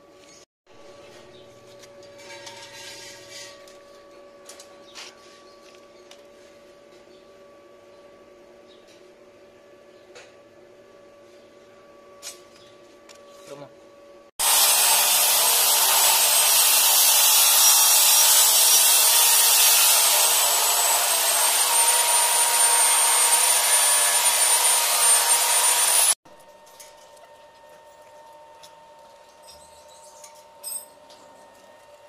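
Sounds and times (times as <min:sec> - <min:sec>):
power tool hissing with high whine: 0:14.4 - 0:26.2.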